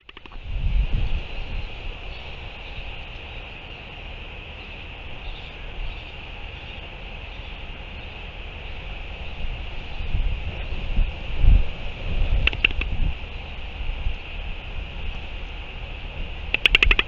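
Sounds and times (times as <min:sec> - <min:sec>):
high-pitched hiss: 0:00.0 - 0:17.0
wind rumbling on microphone: 0:00.0 - 0:17.0.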